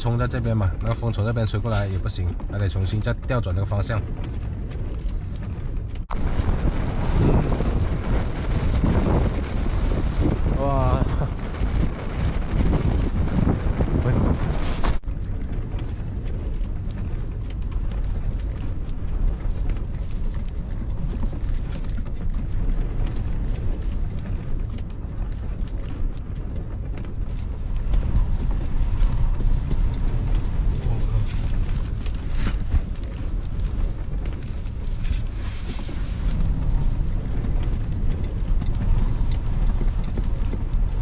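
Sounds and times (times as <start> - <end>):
gusty wind buffeting microphone: 0.0 - 41.0
light clicks and rattles: 15.0 - 41.0.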